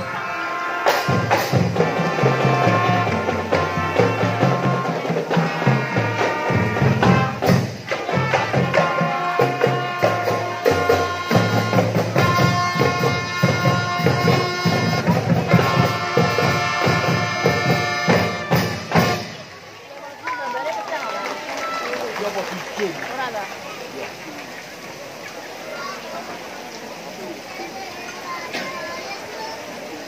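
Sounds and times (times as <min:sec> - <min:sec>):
drums beating: 0:00.0 - 0:20.4.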